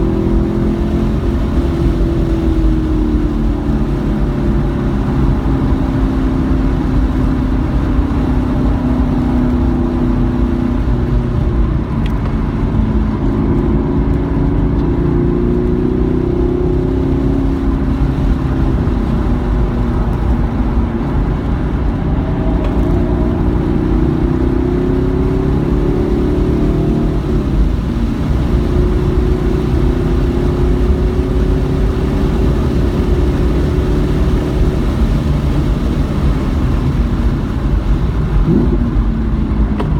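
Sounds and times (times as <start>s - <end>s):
car engine accelerating: 0.0s - 39.9s
road and tyre noise: 0.0s - 39.9s.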